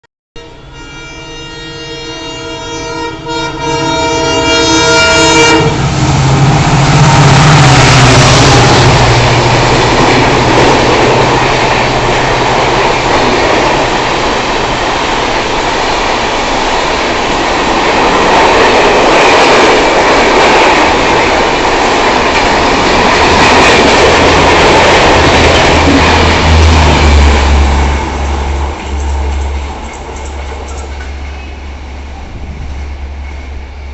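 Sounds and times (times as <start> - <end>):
locomotive horn blast: 0.4 - 9.3
diesel locomotive engine drone: 0.4 - 33.9
train coaches rushing past: 2.4 - 33.9.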